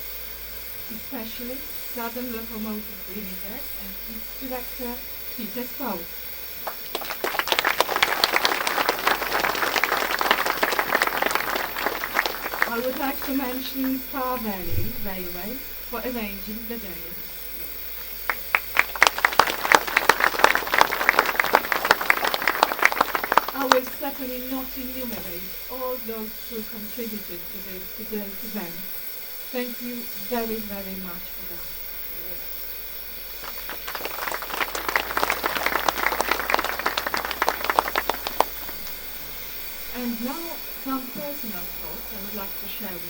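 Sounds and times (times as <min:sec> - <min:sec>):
audience applauding: 0:06.6 - 0:14.6, 0:18.0 - 0:25.3, 0:33.4 - 0:40.6.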